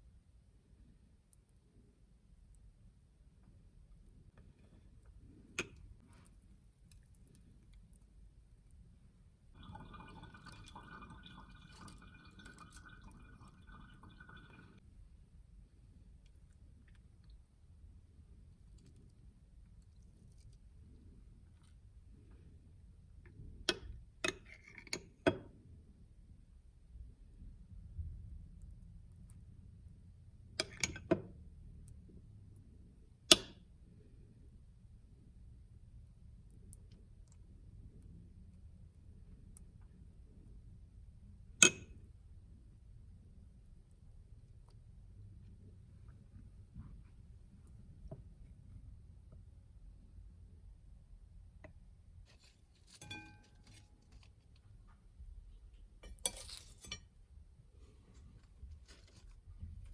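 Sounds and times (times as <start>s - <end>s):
kitchenware clinking: 52.4s - 54.3s, 56.0s - 57.1s.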